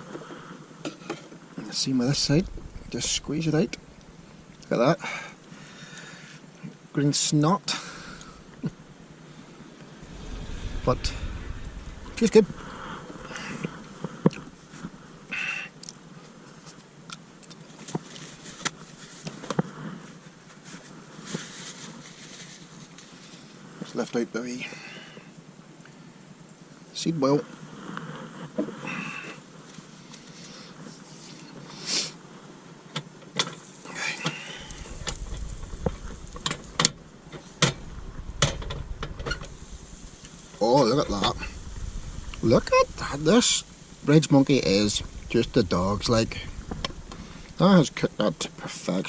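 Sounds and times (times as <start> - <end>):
faint steady background: 0.0 - 16.8, 33.4 - 49.0
low rumble: 1.8 - 5.8, 7.9 - 15.3, 34.6 - 48.7.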